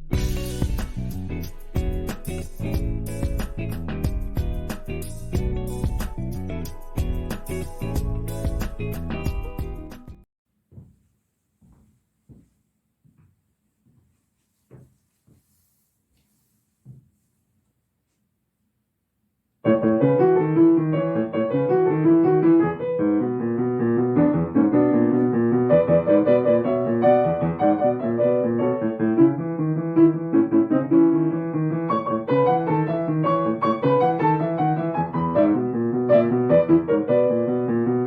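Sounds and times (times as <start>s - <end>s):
solo piano playing: 19.6s - 38.0s.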